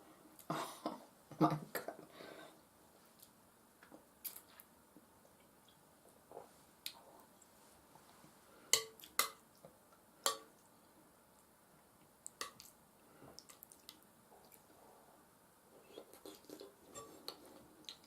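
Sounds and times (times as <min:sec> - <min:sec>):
wet eating sounds: 0:12.2 - 0:14.8, 0:15.9 - 0:18.0.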